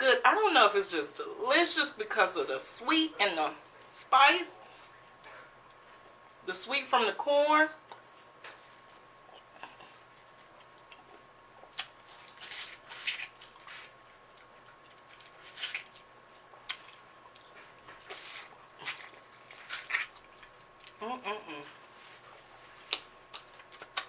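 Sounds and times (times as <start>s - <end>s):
person chewing wetly: 7.8s - 21.0s, 22.2s - 24.0s.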